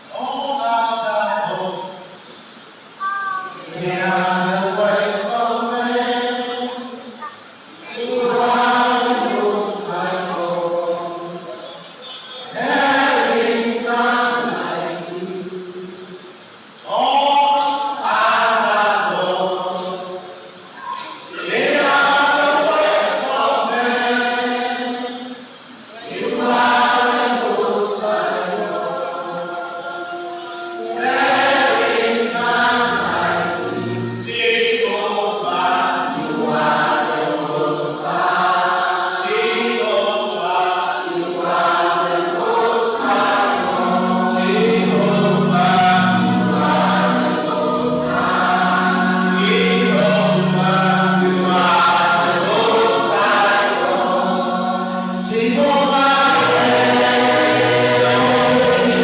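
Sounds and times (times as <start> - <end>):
choir singing gospel song: 0.0 - 59.0.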